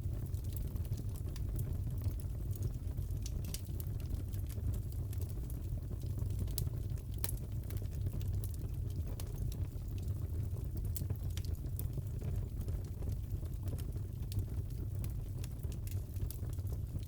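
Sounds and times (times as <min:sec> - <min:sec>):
fireplace crackling: 0:03.2 - 0:12.3, 0:13.5 - 0:17.0.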